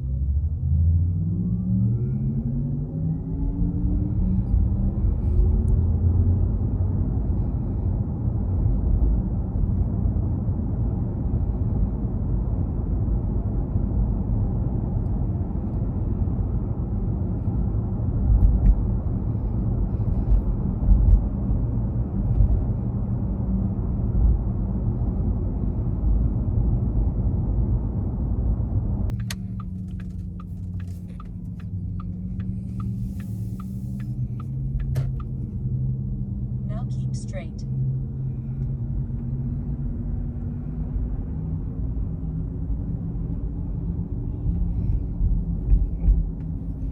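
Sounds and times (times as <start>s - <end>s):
low hum: 0.0s - 46.9s
road and tyre rumble: 0.0s - 46.9s
regular ticking: 29.1s - 35.3s.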